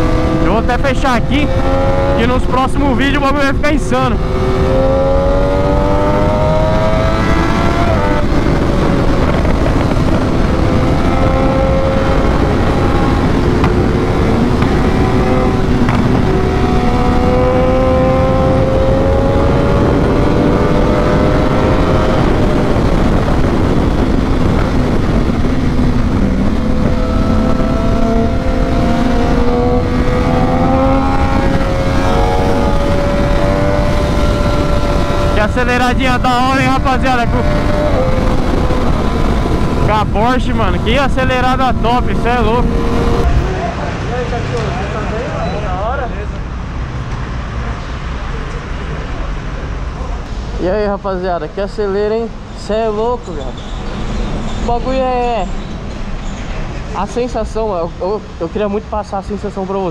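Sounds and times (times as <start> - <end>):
wind noise on microphone: 0.0 - 44.0
motorcycle engine accelerating: 0.0 - 46.0.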